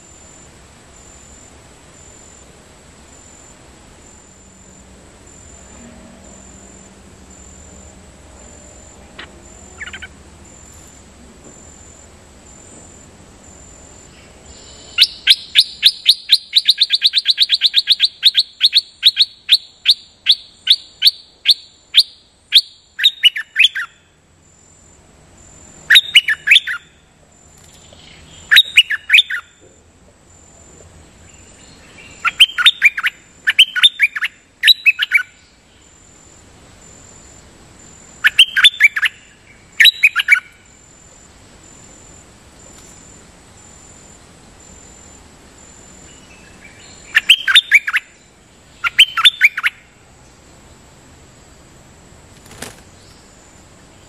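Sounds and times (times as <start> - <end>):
bird singing sharp notes: 9.1 - 10.2, 14.2 - 23.9, 46.1 - 49.8.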